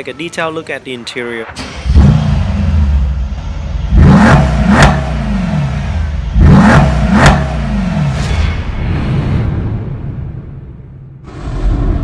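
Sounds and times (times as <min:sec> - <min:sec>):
exhaust crack: 0:01.5 - 0:08.8
car engine idling: 0:01.6 - 0:08.2
car engine revving: 0:01.6 - 0:08.3.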